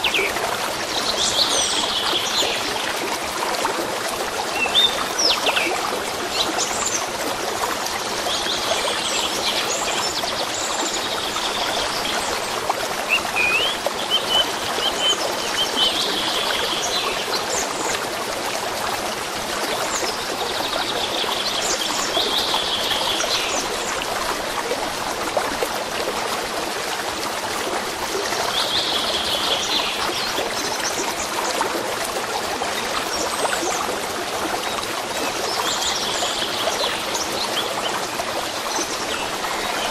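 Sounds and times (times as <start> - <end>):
stream trickling: 0.0 - 39.9
songbirds singing: 4.5 - 7.1, 8.3 - 17.8.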